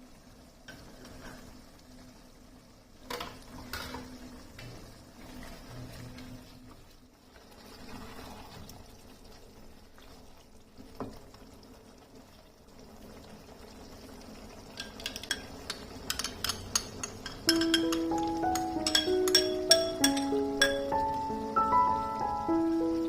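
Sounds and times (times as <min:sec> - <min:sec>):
low steady cooking hiss: 0:00.0 - 0:23.0
utensils clinking on cookware: 0:14.7 - 0:21.1.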